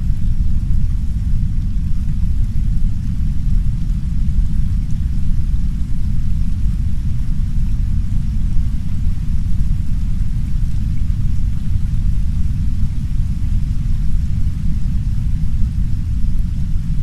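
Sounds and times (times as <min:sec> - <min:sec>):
deep rumbling brown noise: 0:00.0 - 0:17.0
soft rain against a window: 0:00.0 - 0:17.0.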